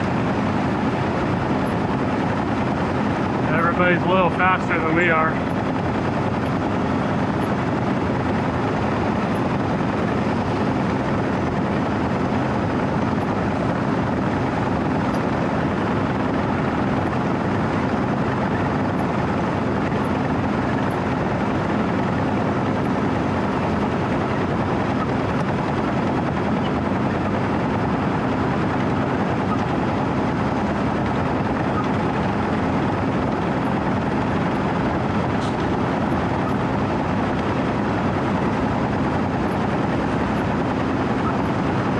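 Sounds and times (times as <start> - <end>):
diesel engine droning: 0.0 - 41.9.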